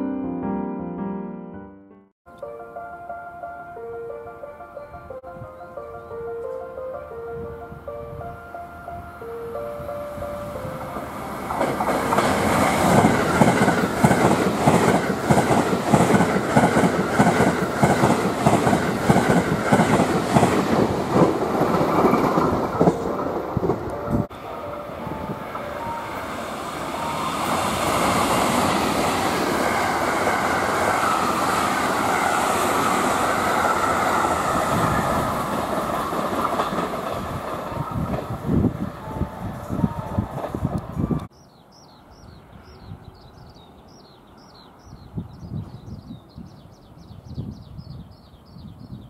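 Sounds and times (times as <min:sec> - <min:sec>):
train passing rushing noise: 0:07.4 - 0:41.3
train wheels clickety-clack: 0:11.5 - 0:24.3, 0:33.6 - 0:38.4.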